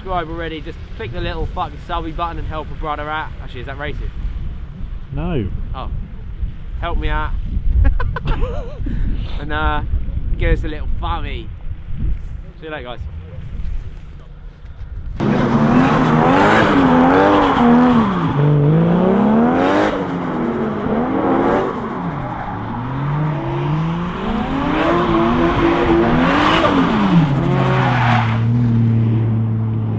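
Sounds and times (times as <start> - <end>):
car engine revving: 15.1 - 29.9.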